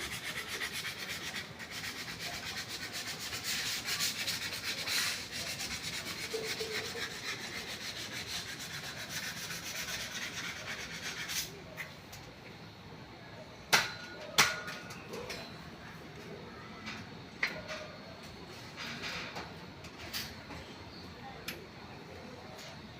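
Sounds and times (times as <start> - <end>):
hand scraping on hard surface: 0.0 - 11.9.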